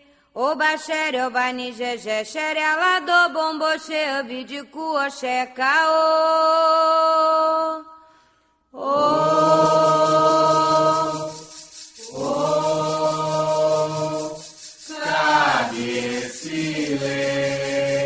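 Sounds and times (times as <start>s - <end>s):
voices chanting a song: 8.9s - 18.0s.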